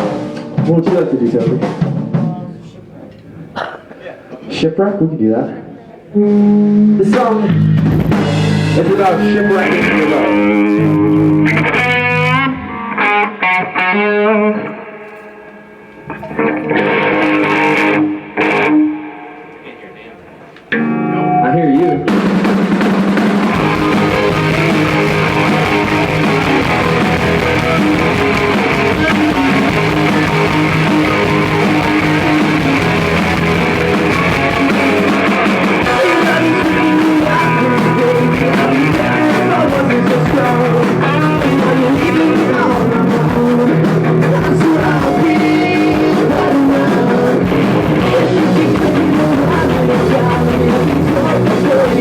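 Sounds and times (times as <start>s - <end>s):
electric guitars: 0.0s - 4.4s, 6.0s - 52.0s
drums: 0.0s - 4.6s, 6.0s - 14.1s, 14.7s - 52.0s
person singing: 6.2s - 14.8s, 23.5s - 52.0s.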